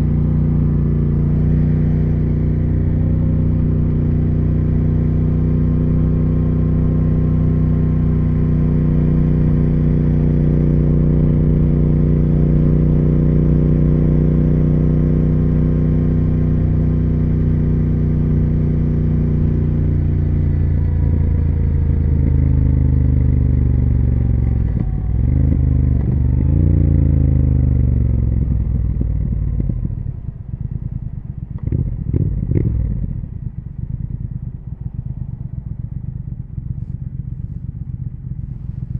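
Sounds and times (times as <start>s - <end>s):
motorcycle engine and exhaust: 0.0s - 38.9s.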